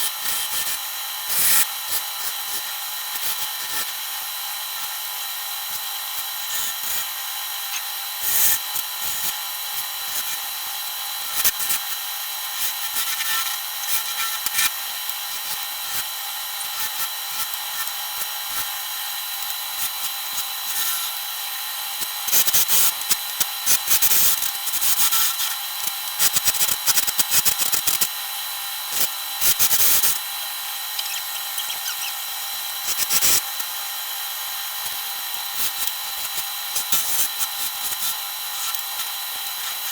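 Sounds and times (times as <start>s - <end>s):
wood lathe motor whine: 29.7s - 33.1s.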